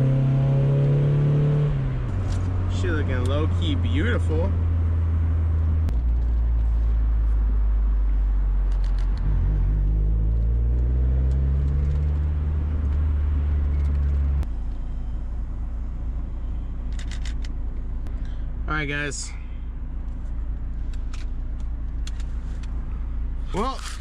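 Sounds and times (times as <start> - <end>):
car engine revving: 0.0 - 15.0
road noise: 0.0 - 24.0.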